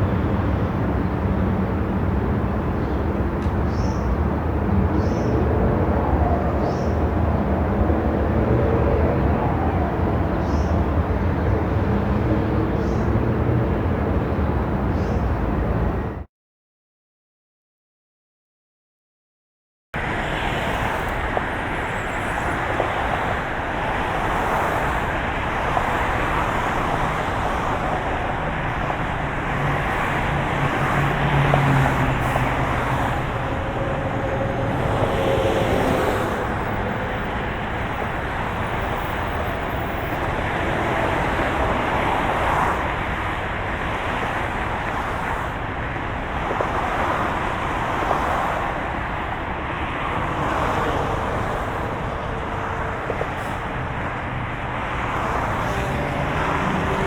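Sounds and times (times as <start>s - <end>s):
car road noise: 0.0s - 16.3s, 20.0s - 57.0s.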